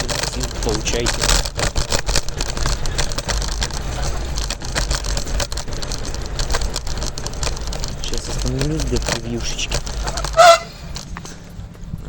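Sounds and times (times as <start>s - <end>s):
scooter wheels rattling: 0.0s - 12.0s
wind noise on microphone: 9.7s - 12.0s.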